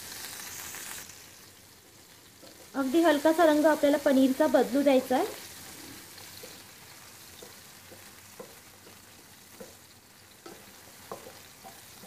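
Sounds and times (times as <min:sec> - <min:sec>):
cheese sizzling in oil: 0:00.0 - 0:12.0
wooden spatula knocking pan: 0:06.2 - 0:12.0.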